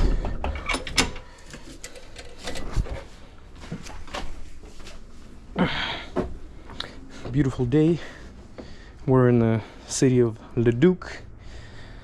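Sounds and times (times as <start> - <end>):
equipment clicking and clattering: 0.0 - 3.2.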